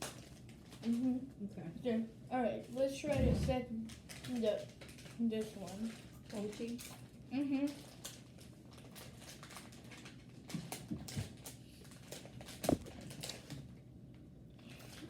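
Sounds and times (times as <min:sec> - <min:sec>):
people chewing snack: 0:03.8 - 0:13.7.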